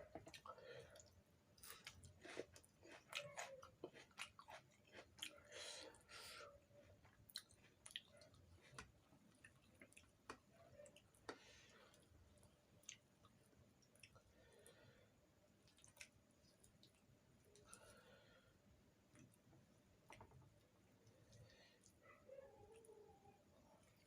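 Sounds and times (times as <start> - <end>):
person chewing food: 0.0 - 14.9, 15.5 - 18.1.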